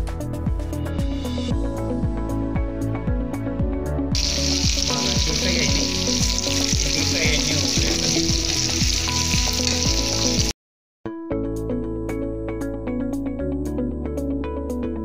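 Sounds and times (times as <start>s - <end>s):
background music with steady beat: 0.0s - 10.5s
vegetables deep-frying in oil: 4.2s - 10.5s.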